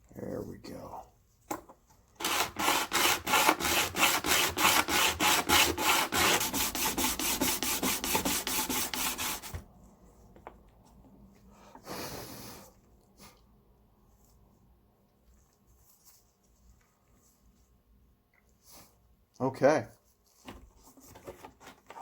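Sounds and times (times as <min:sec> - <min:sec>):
bridge foot sanding on sandpaper: 0:02.2 - 0:09.6.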